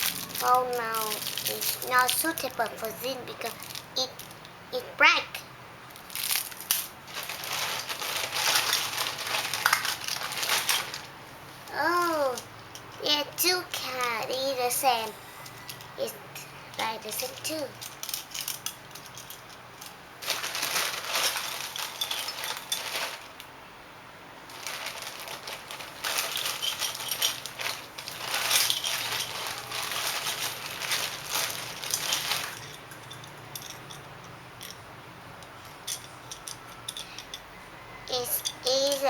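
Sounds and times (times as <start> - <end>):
plastic toy cars clattering: 0.0 - 4.4, 6.0 - 11.1, 16.8 - 23.4, 24.5 - 34.0.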